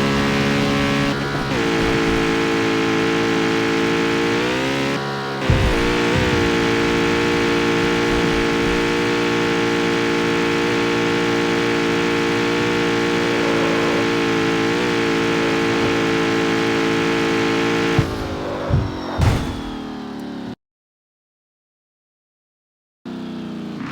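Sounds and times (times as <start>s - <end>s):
car engine revving: 0.0s - 20.5s, 23.1s - 23.9s
exhaust crack: 5.4s - 20.0s.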